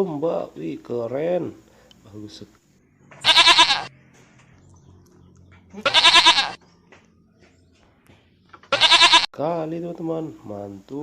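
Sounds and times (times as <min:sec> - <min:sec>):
sheep bleating: 0:03.2 - 0:03.9, 0:05.7 - 0:06.6, 0:08.7 - 0:09.4.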